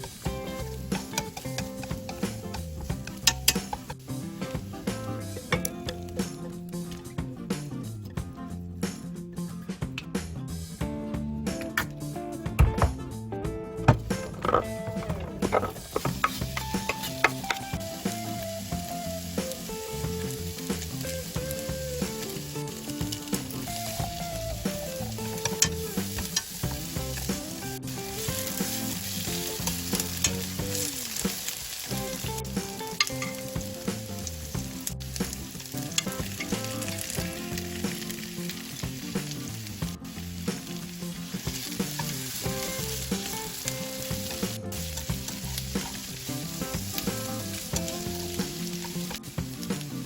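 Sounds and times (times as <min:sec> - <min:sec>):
spatula scraping a pan: 0:00.0 - 0:04.1, 0:14.1 - 0:17.7, 0:41.3 - 0:49.4
food sizzling in a pan: 0:00.0 - 0:08.1, 0:14.0 - 0:50.0.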